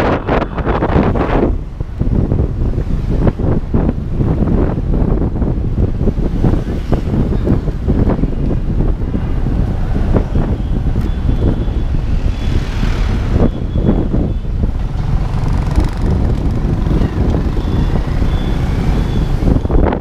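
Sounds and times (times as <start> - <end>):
wind buffeting microphone: 0.0 - 20.0
motorbike engine: 9.2 - 19.6.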